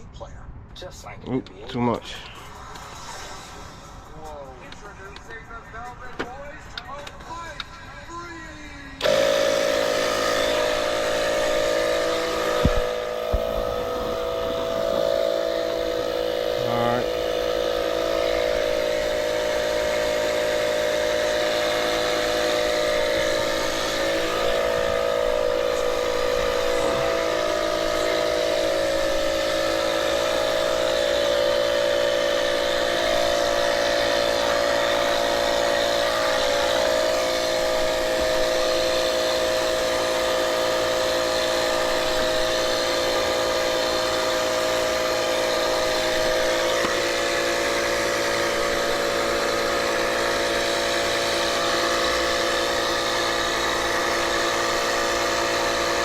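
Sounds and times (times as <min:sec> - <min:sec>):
air compressor running: 0:01.8 - 0:56.0.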